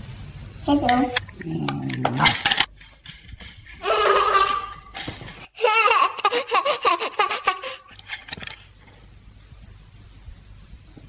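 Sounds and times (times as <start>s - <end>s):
baby laughing: 3.8s - 8.0s.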